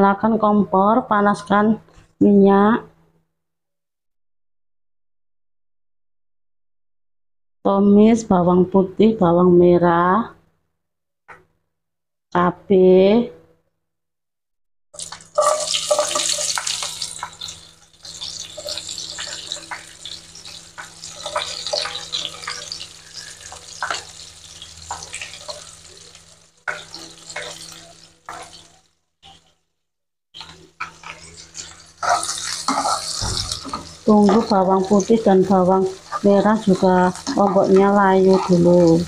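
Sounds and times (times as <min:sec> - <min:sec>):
food sizzling in hot oil: 0:15.0 - 0:29.6, 0:30.4 - 0:39.0.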